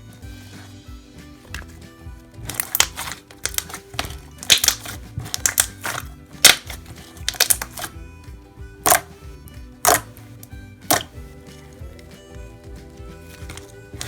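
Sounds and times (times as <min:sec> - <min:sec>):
background music: 0:00.0 - 0:14.0
slime clicking and popping: 0:02.5 - 0:07.9, 0:08.9 - 0:09.1, 0:09.9 - 0:10.1, 0:10.9 - 0:11.1.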